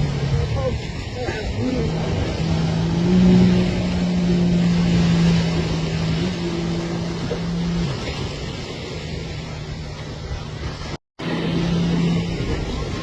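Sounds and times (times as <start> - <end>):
jet ski engine running: 0.0 - 13.0.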